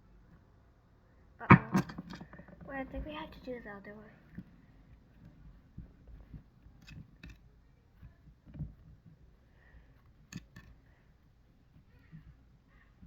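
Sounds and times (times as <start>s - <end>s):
sharp clicks: 1.4s - 3.5s.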